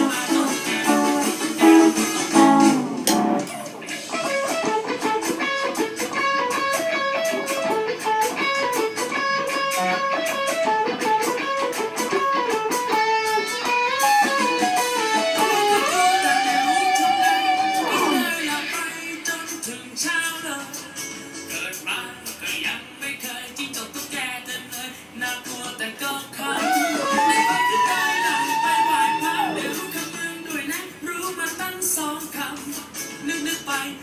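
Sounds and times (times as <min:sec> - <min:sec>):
band music: 0:00.0 - 0:18.9, 0:26.6 - 0:31.0
electric guitar melody: 0:00.0 - 0:21.6, 0:26.4 - 0:34.0.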